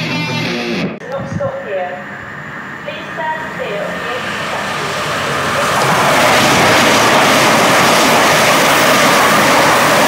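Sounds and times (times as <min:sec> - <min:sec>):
electric train passing: 0:01.0 - 0:10.0.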